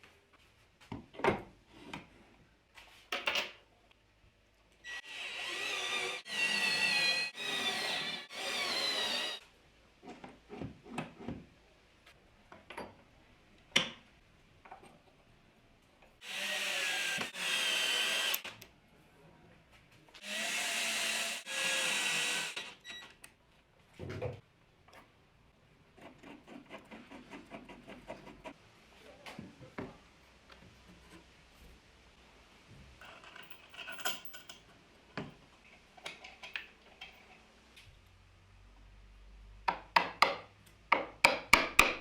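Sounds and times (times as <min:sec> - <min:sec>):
power drill running: 0:04.9 - 0:09.4, 0:16.2 - 0:18.5, 0:20.2 - 0:22.8.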